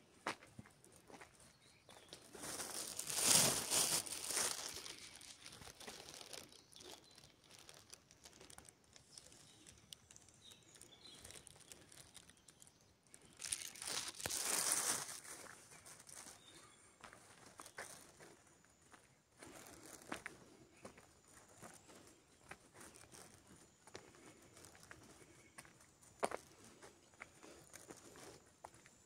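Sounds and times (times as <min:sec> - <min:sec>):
close rustling and crinkling: 0:02.0 - 0:18.4.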